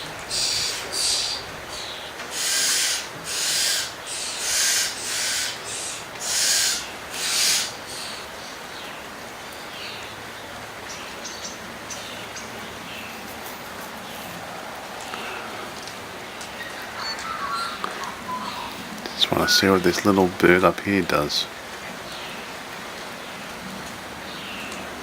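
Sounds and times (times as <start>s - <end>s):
cockatoo screeching: 0.3s - 1.5s, 2.3s - 8.2s, 16.6s - 20.0s.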